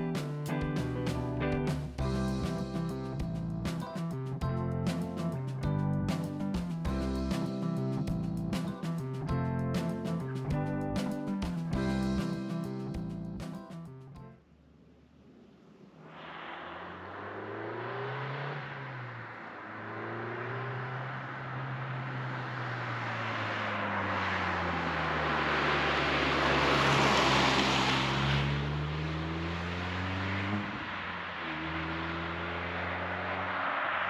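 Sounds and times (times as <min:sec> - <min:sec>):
car engine revving while driving: 0:16.4 - 0:34.0.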